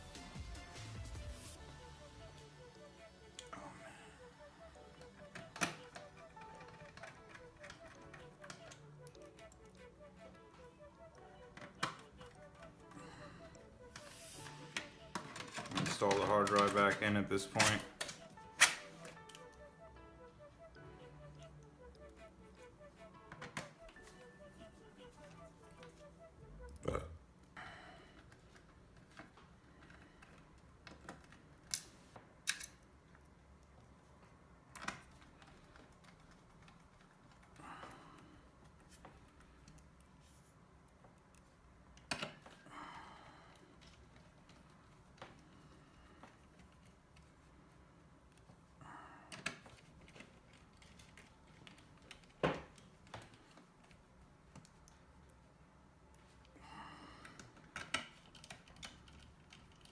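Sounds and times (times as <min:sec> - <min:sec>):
small parts clicking and tapping: 0:04.8 - 0:19.6, 0:28.2 - 0:37.9, 0:57.2 - 0:59.9
light clicks of small parts: 0:28.5 - 0:37.9, 0:57.2 - 0:59.9.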